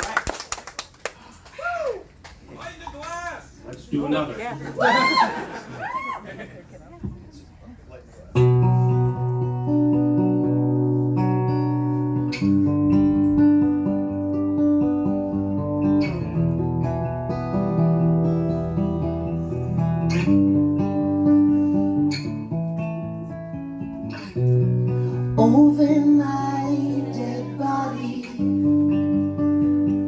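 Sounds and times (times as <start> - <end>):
acoustic guitars playing chords: 8.3 - 30.0
person singing: 25.3 - 28.9.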